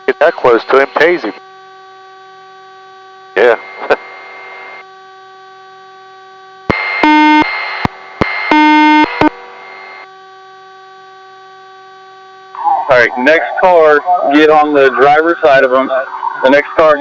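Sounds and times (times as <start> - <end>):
radio clicks and static hiss: 0.0 - 17.0
steady hum: 0.0 - 17.0
short electronic beeps: 6.8 - 7.5, 8.4 - 9.3.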